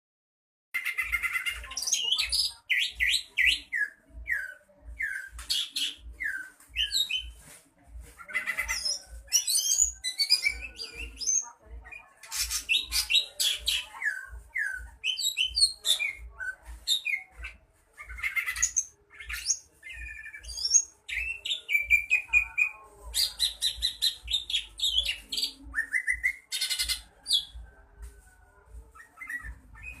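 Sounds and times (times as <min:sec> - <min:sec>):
bird singing whistled song: 0:18.2 - 0:22.4, 0:23.2 - 0:27.5, 0:29.0 - 0:30.0.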